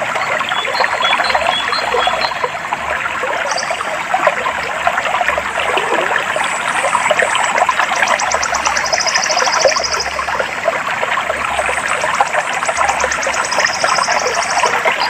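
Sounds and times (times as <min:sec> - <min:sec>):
water flowing and trickling: 0:00.0 - 0:15.0
faint high bird chirps: 0:03.5 - 0:03.9.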